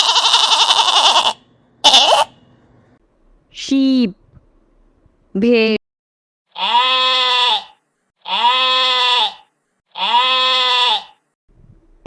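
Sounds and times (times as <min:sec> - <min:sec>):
sheep bleating: 0:00.0 - 0:02.4, 0:06.5 - 0:11.2.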